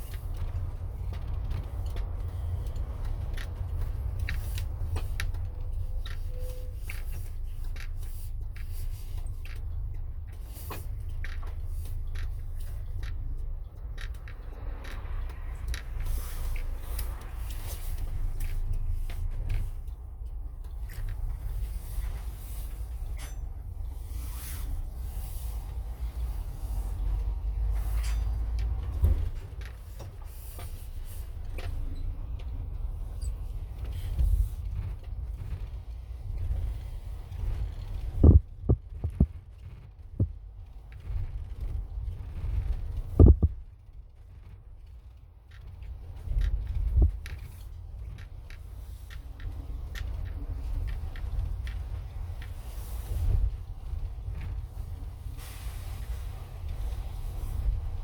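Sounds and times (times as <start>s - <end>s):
light clicks and rattles: 0.0s - 58.0s
road and engine rumble: 0.0s - 58.0s
short knocks and rattles: 42.7s - 43.7s.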